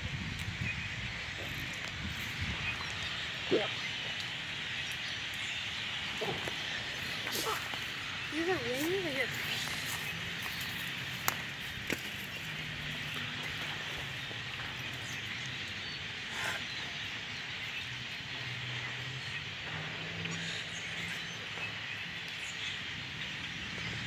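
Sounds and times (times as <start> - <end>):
flock of blackbirds calling: 0.0 - 24.0.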